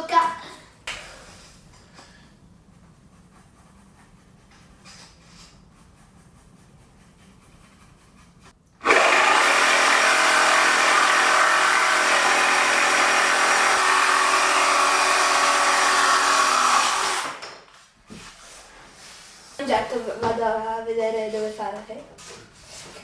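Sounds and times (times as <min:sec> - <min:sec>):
power tool cutting wood: 0:08.8 - 0:17.6.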